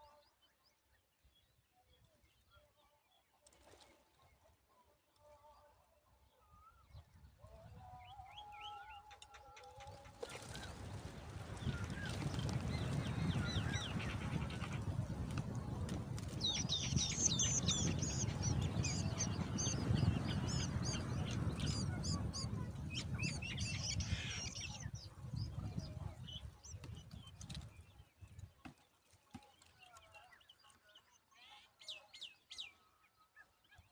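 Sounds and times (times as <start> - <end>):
small birds chirping: 9.4 - 28.3.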